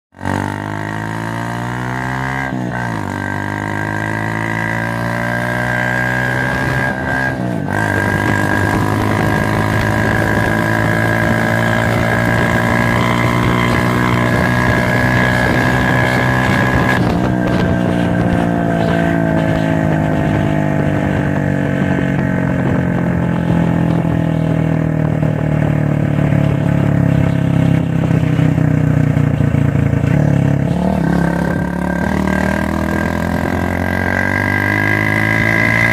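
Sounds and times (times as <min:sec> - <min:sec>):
motorcycle engine revving: 0:00.1 - 0:35.9.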